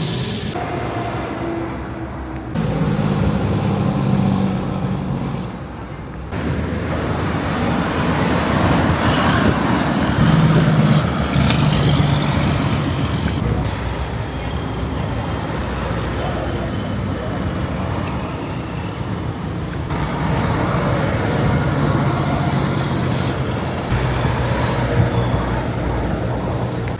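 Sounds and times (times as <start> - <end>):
truck engine rumble: 0.0 - 26.9.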